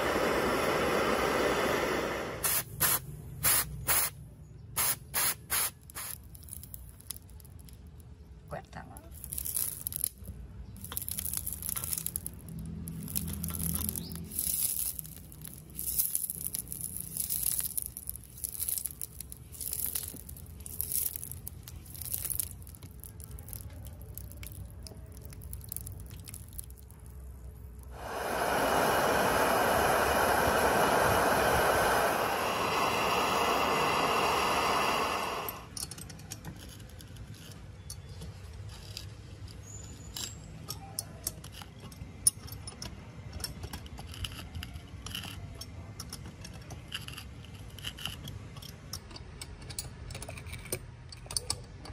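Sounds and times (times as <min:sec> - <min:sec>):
loud steady hiss: 0:00.0 - 0:06.7, 0:27.8 - 0:35.7
liquid sizzling on hot metal: 0:04.8 - 0:07.4, 0:10.8 - 0:35.7.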